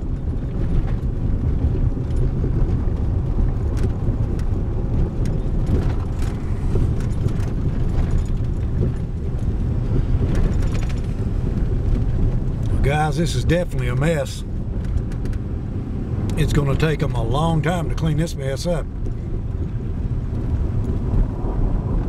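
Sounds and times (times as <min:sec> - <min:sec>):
truck driving on bumpy road: 0:00.0 - 0:22.0
light knocks and rattles: 0:00.1 - 0:12.9.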